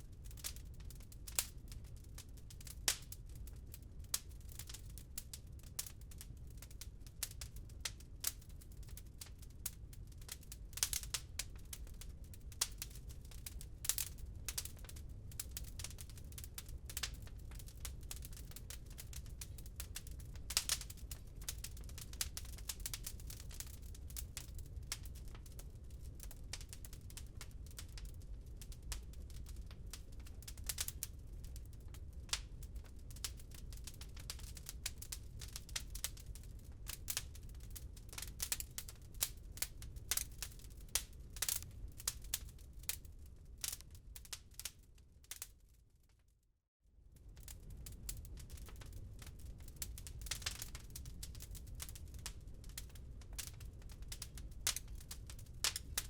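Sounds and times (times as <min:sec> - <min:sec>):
wood fire crackling and popping: 0:00.1 - 0:45.7, 0:47.2 - 0:56.0.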